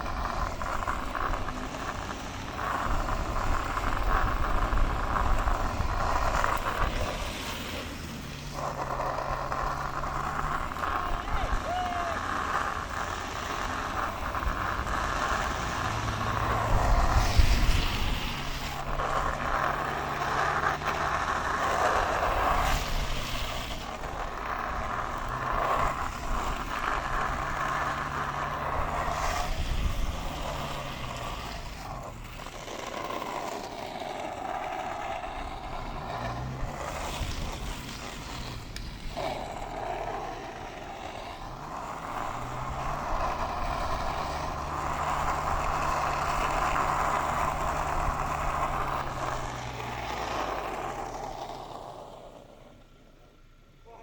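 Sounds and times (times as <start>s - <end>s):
wheels rolling on asphalt: 0.0s - 54.0s
wind rushing over microphone: 12.8s - 19.8s, 28.6s - 32.1s.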